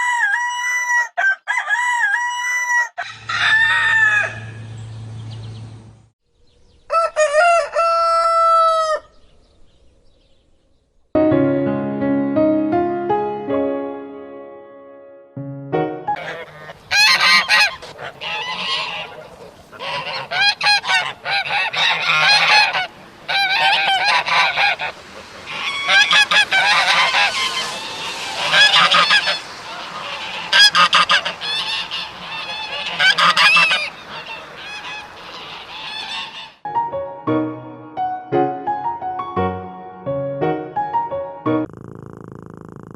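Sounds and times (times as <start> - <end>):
geese honking: 16.1 - 36.6.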